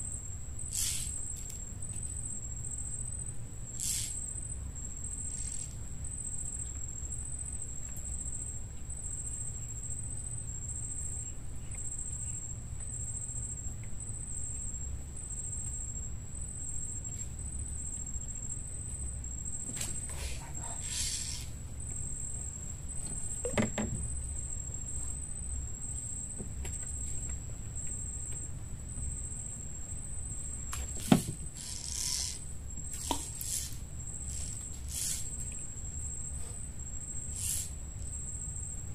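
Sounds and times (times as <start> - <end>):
insects chirring: 0.0 - 38.9
short knocks and rustles: 30.7 - 31.5.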